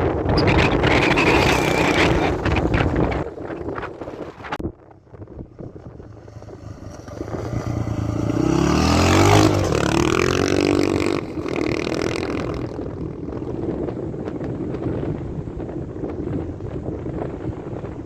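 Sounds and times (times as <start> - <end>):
motorcycle engine passing by: 0.3 - 15.0.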